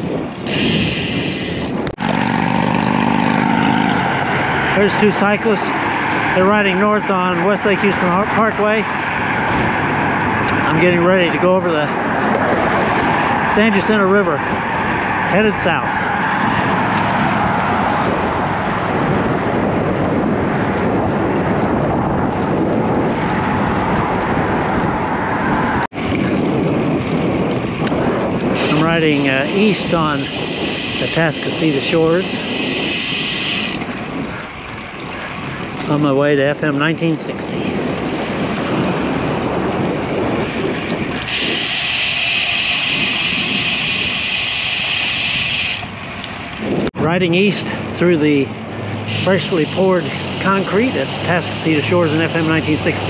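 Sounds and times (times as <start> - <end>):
road traffic: 0.0 - 53.0
wind rushing on microphone: 0.0 - 53.0
tyre hiss on road: 49.1 - 51.2.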